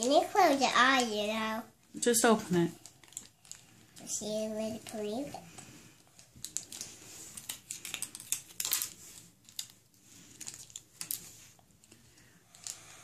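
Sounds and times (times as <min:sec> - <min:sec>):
plastic packaging crinkling: 0:02.8 - 0:03.8, 0:06.1 - 0:11.9.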